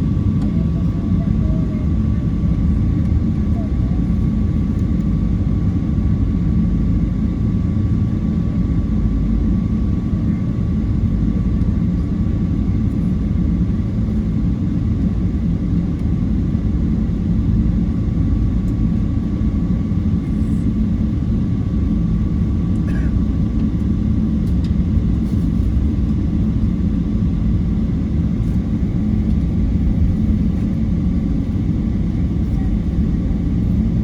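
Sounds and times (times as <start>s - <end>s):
airplane engine rumble and whine: 0.0s - 34.0s.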